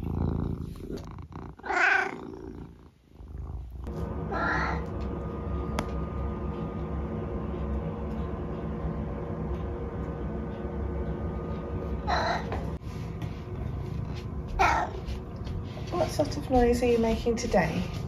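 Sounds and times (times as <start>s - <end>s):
cat purring: 0.0s - 4.9s.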